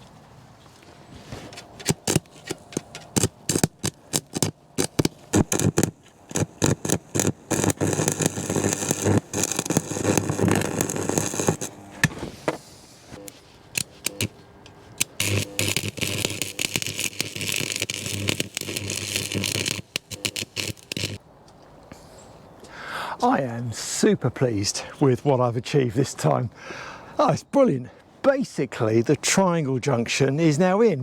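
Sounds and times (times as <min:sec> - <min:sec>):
taps on metal: 0:01.6 - 0:03.7.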